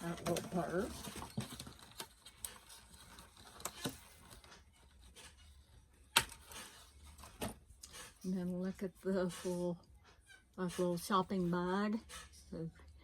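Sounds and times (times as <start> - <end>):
small objects clicking and rustling: 0.0 - 8.2.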